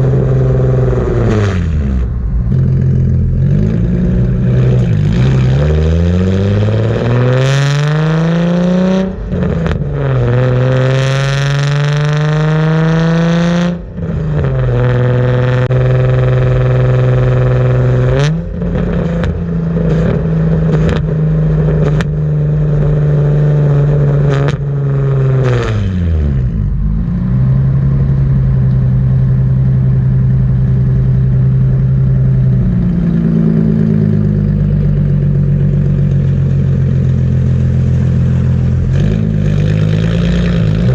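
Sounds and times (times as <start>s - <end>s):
loud car exhaust accelerating: 0.0s - 40.9s.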